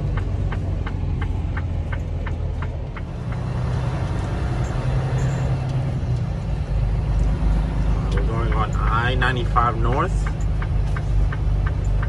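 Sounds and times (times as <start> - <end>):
diesel engine rumbling: 0.0 - 12.0
turn signal clicking: 7.1 - 12.0.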